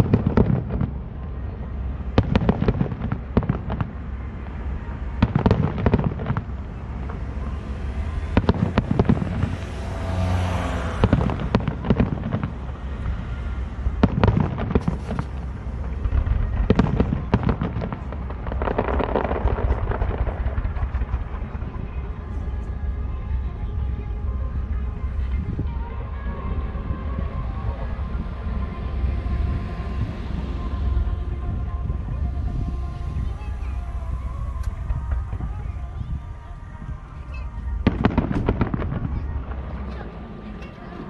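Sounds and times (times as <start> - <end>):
fireworks rushing and crackling: 0.0 - 41.0
firework shells booming: 8.3 - 9.8, 13.9 - 22.7, 37.3 - 41.0.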